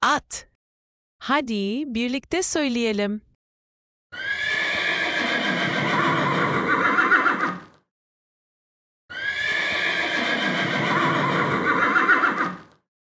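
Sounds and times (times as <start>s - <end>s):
horse neighing: 4.2s - 7.7s, 9.1s - 12.7s.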